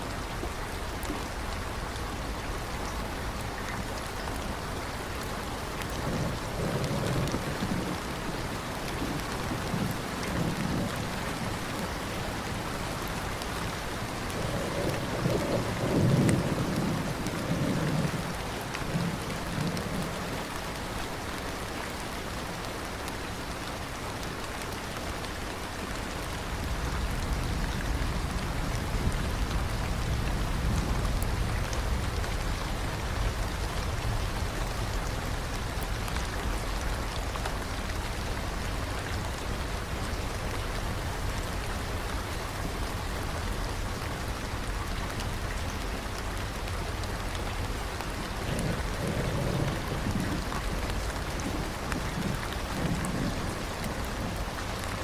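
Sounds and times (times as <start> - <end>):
steady rain: 0.0 - 55.0
thunder rolling: 5.6 - 20.4, 47.6 - 55.0.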